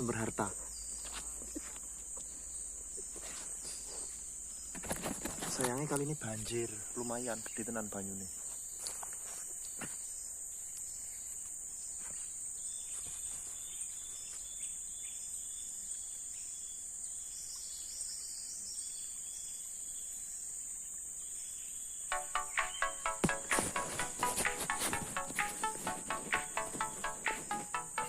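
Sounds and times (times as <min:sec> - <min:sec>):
insects chirping: 0:00.0 - 0:28.0
music with a beat: 0:22.1 - 0:28.0.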